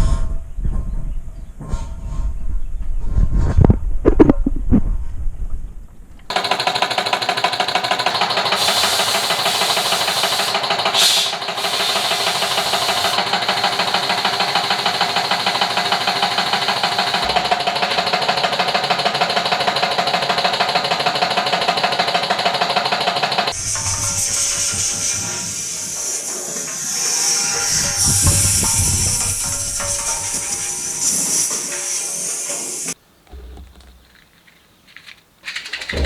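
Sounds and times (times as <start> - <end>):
motorcycle engine running: 6.3 - 23.6.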